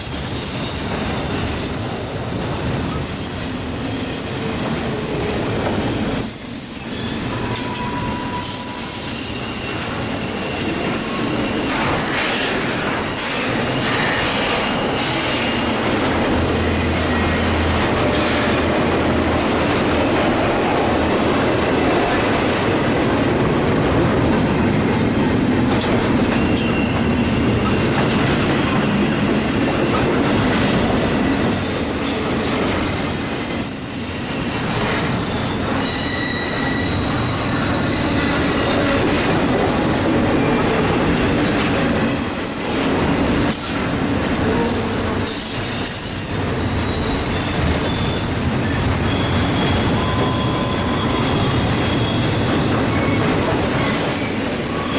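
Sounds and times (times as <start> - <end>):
freight train wheels on rails: 0.0 - 54.9
thin wheel squeals: 5.8 - 12.4, 26.4 - 27.4, 35.0 - 38.4, 46.1 - 54.9.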